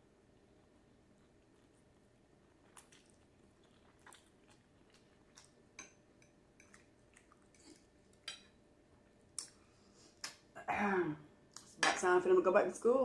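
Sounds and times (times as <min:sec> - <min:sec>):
chewing and mouth smacks: 0:00.4 - 0:05.7, 0:06.6 - 0:08.2.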